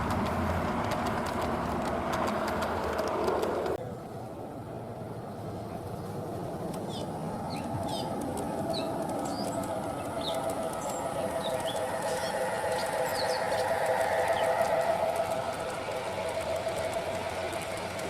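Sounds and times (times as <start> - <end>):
model train motor humming: 5.7 - 18.0
bird chirps: 6.9 - 15.5.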